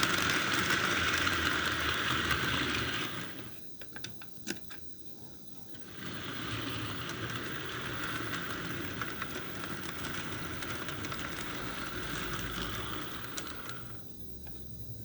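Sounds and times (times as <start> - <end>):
model train motor whirring: 0.0 - 3.6, 5.7 - 14.0
wheels ticking on rails: 5.9 - 14.0.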